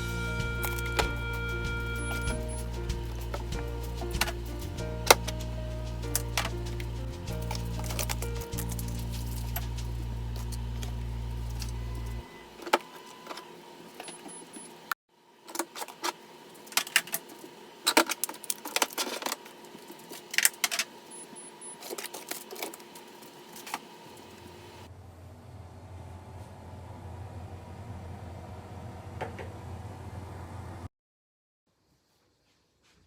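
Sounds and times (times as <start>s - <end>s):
background music: 0.0s - 12.2s.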